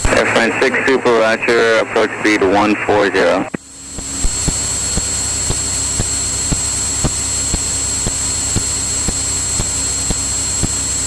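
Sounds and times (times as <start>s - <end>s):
airplane engine drone: 0.0s - 11.0s
thin high whine: 0.0s - 11.0s
sharp regular clicks: 3.5s - 10.8s.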